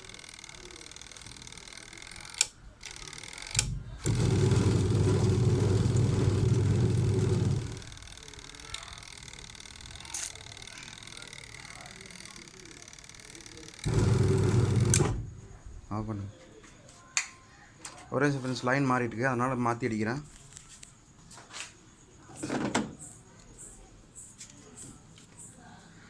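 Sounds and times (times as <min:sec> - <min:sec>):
sharp clicks: 0:00.0 - 0:04.7
washing machine motor humming: 0:03.5 - 0:08.0, 0:13.8 - 0:15.6.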